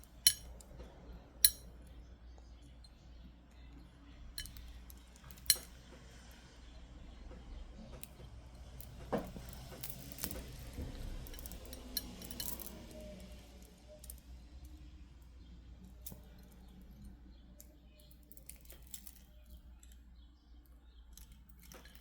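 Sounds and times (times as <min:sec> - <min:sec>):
beads clicking together: 0:00.0 - 0:00.6, 0:01.4 - 0:01.6.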